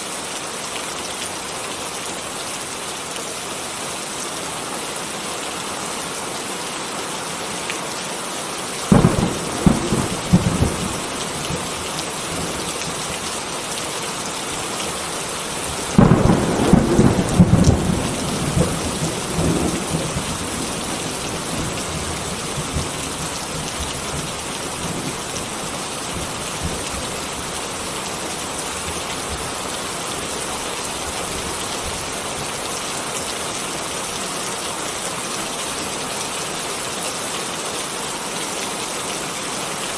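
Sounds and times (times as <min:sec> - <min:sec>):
steady rain falling: 0:00.0 - 0:39.9
thunder rumbling and crackling: 0:08.9 - 0:13.3, 0:15.7 - 0:25.5.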